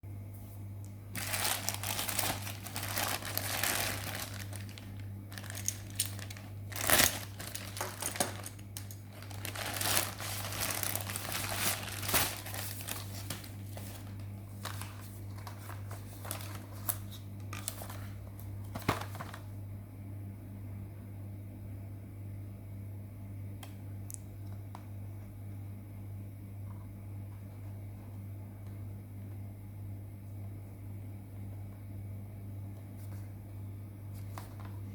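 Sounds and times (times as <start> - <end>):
packaging crinkling: 1.1 - 19.5.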